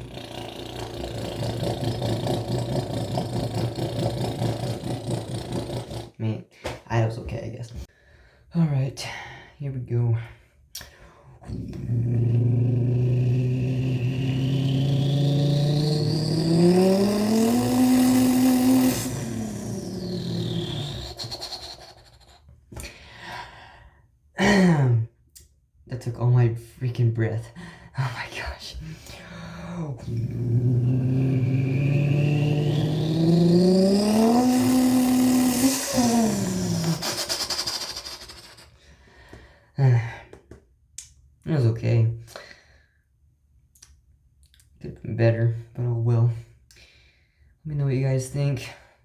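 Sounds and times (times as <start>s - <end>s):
person imitating truck engine drone: 0.0s - 6.1s, 11.5s - 22.4s, 29.9s - 38.7s.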